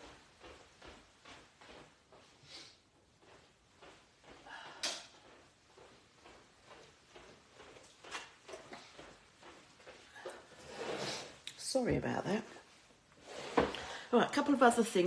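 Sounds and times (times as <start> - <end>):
faint knocks and rustles: 0.0 - 11.4.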